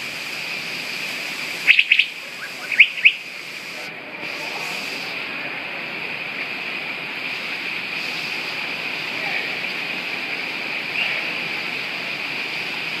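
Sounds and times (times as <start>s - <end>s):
rushing water: 0.0s - 13.0s
bird chirp: 1.7s - 3.2s
murmur of voices: 3.6s - 6.8s.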